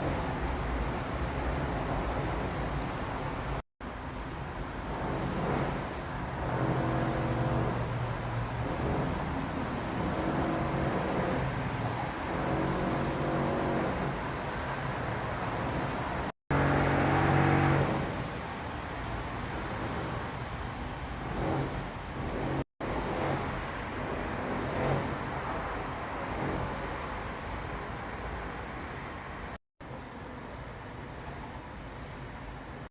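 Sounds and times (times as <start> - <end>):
steady background noise: 0.0 - 32.9
vehicle engines passing: 5.3 - 18.4.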